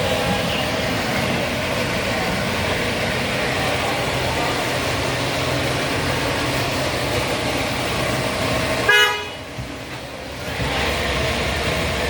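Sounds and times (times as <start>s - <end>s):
engine and traffic hum: 0.0s - 12.0s
vehicle horn toot: 8.9s - 9.5s.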